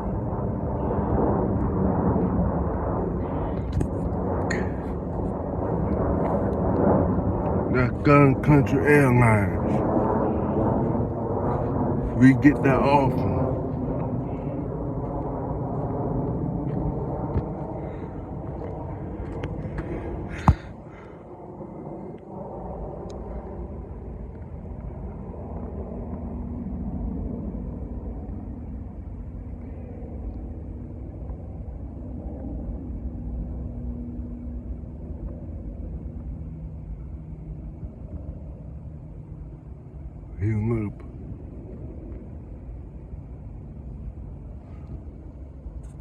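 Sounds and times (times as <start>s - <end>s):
low engine rumble: 0.0s - 26.6s.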